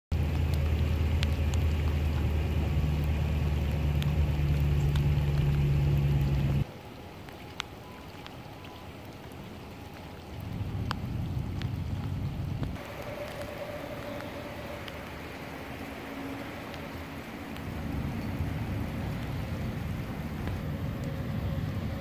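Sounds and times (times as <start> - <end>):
close drops ticking: 0.1 - 6.6
steady low hum: 0.1 - 6.7
heavy rain on flooded pavement: 0.1 - 22.0.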